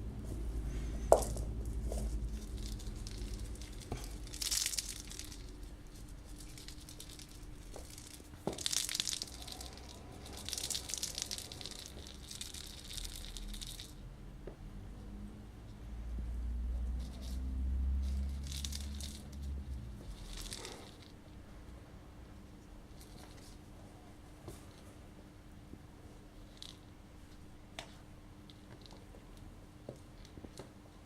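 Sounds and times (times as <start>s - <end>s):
rustling and crinkling: 0.0s - 14.0s, 16.8s - 21.4s, 22.3s - 25.1s.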